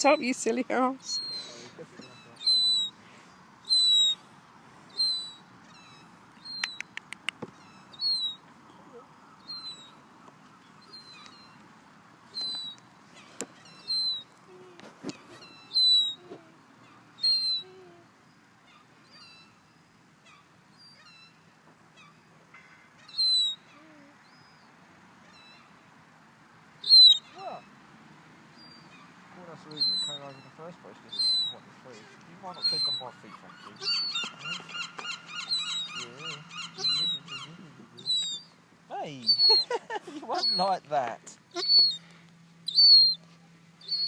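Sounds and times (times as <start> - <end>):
seagull mewing calls: 1.0 - 3.0, 3.6 - 4.2, 15.1 - 19.6, 26.8 - 27.7, 28.6 - 38.5, 39.1 - 40.8, 41.5 - 42.1, 42.7 - 44.0
sharp clicks: 6.6 - 7.5.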